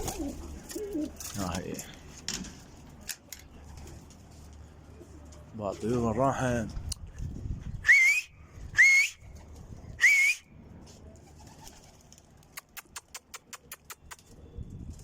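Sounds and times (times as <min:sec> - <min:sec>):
man whistling sharp rising whistles: 0:07.8 - 0:09.3, 0:10.0 - 0:10.5
sharp clicks: 0:12.5 - 0:14.3.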